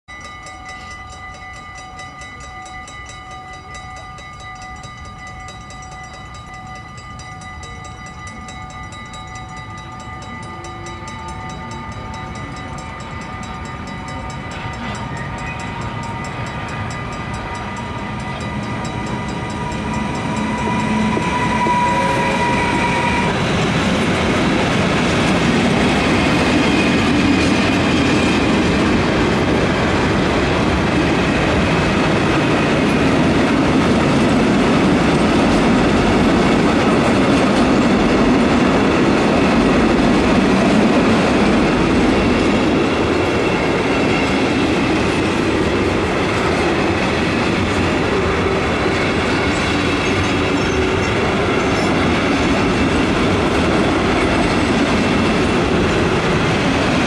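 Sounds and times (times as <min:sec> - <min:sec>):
locomotive whining tones: 0:00.1 - 0:57.0.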